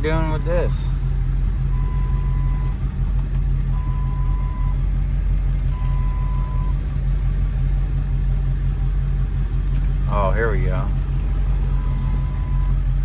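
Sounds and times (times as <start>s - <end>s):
engine droning: 0.0s - 13.0s
reversing alarm beeping: 1.7s - 2.8s, 3.8s - 4.8s, 5.8s - 6.8s, 11.7s - 12.8s.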